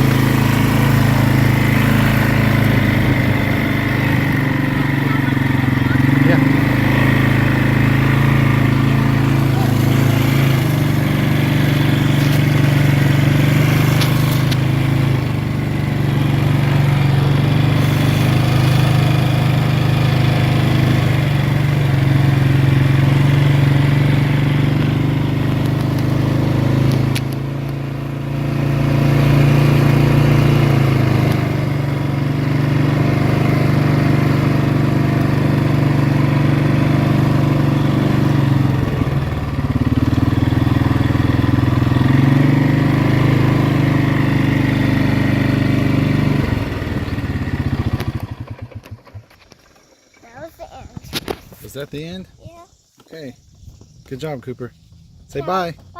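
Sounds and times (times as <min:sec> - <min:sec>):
atv engine running: 0:00.0 - 0:55.9.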